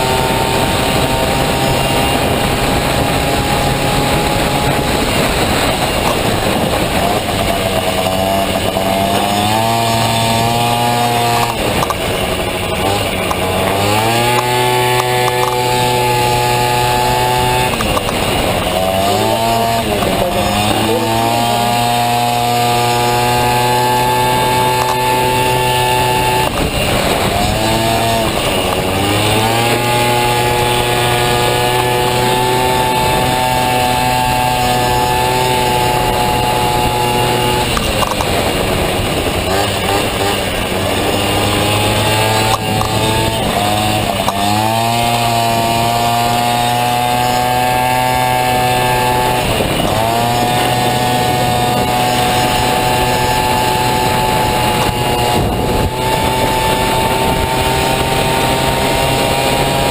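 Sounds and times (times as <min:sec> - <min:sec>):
scooter engine buzzing at high revs: 0:00.0 - 0:59.9.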